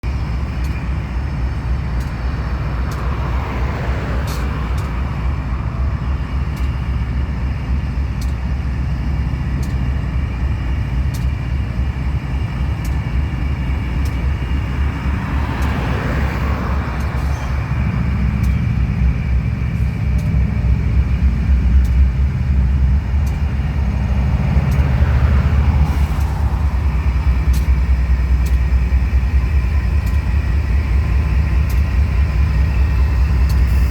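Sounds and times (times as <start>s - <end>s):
freight train rumbling past: 0.0s - 33.9s
road vehicles passing: 0.0s - 33.9s
faint ticks: 0.6s - 0.8s, 2.0s - 2.3s, 2.9s - 3.2s, 8.2s - 8.5s, 9.5s - 10.0s, 11.0s - 11.6s, 12.6s - 14.7s, 15.6s - 15.8s, 17.0s - 18.9s, 19.8s - 23.8s, 24.6s - 25.2s, 25.9s - 28.8s, 30.0s - 33.9s.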